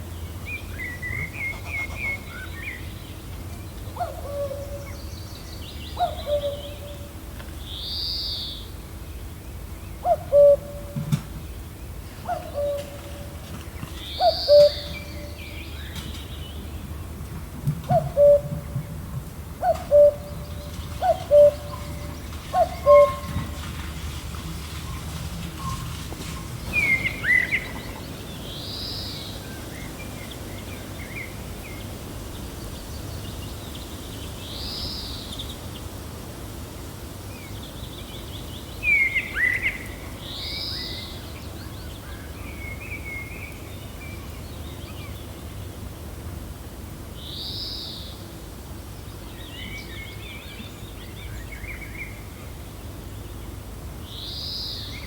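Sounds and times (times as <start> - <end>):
wind rumbling: 10.8 - 34.7
small birds chirping: 11.5 - 17.2
high arched bird call: 21.0 - 23.4.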